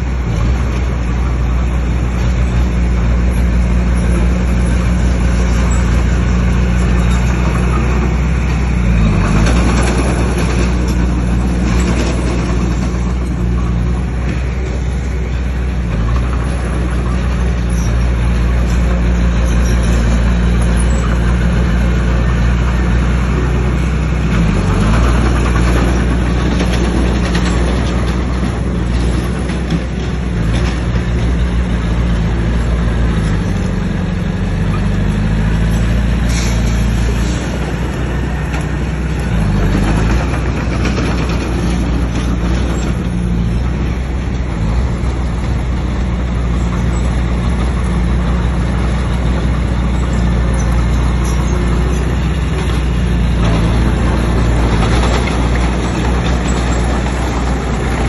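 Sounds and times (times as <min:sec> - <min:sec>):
bulldozer engine under load: 0:00.0 - 0:58.0
clatter and scraping of stone: 0:24.3 - 0:31.8, 0:35.6 - 0:45.6, 0:46.2 - 0:58.0.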